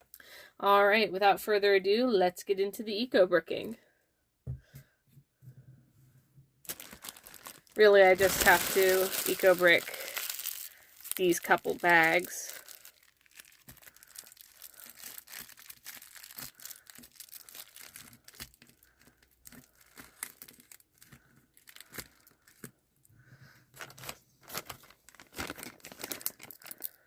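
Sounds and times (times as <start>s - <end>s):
plastic bags crinkling: 6.7s - 22.8s, 23.7s - 27.0s.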